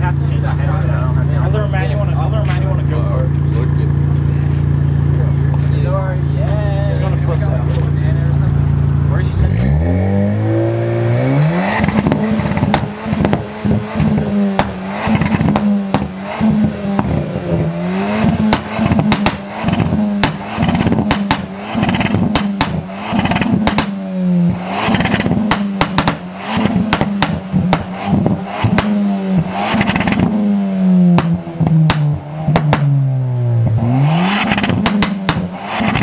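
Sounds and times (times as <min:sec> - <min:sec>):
car engine revving: 0:00.0 - 0:36.0
exhaust cracks and pops: 0:02.4 - 0:09.2, 0:11.8 - 0:17.2, 0:18.2 - 0:24.0, 0:24.9 - 0:30.4, 0:31.1 - 0:33.0, 0:34.4 - 0:36.0.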